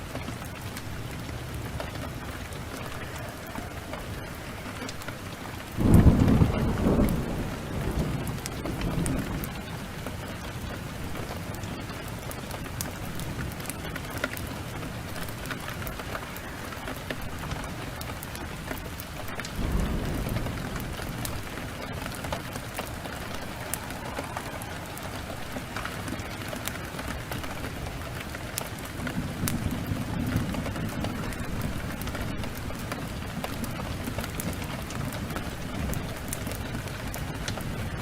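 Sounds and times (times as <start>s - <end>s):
heavy rain pouring: 0.0s - 38.0s
wood fire crackling: 0.0s - 38.0s
thunder rumble: 0.2s - 38.0s.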